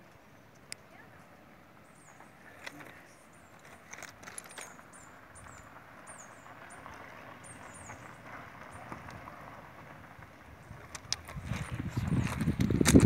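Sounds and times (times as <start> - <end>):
faint steady background noise: 0.0 - 11.7
small birds chirping: 0.3 - 9.0.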